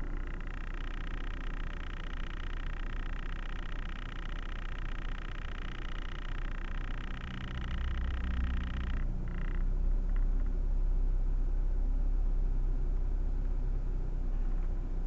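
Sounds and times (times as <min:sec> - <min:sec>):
car engine rumble: 0:00.0 - 0:03.0, 0:04.5 - 0:15.0
rapid pulsing high chirp: 0:00.0 - 0:09.6.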